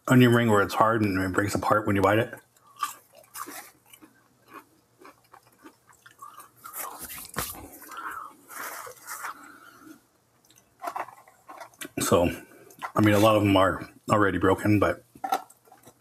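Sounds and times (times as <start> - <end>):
person chewing crunchy food: 2.4 - 13.5, 15.1 - 16.0.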